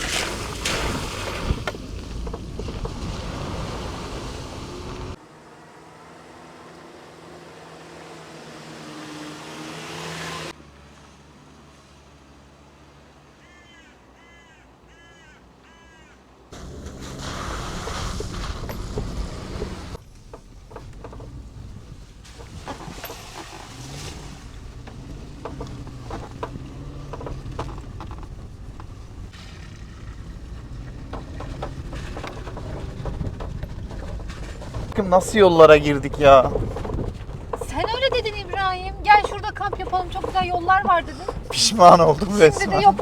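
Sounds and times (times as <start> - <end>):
knocks and rattles: 0.0 - 5.2, 16.6 - 43.0
moving vehicle rushing noise: 0.0 - 5.2, 16.5 - 43.0
vehicle driving over rough track: 0.0 - 6.8, 16.5 - 43.0
crow cawing: 13.4 - 16.2.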